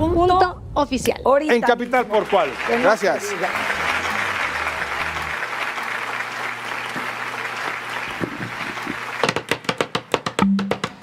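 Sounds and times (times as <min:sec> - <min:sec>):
audience applauding: 0:01.7 - 0:09.7
folk music with percussive strikes: 0:09.2 - 0:11.0.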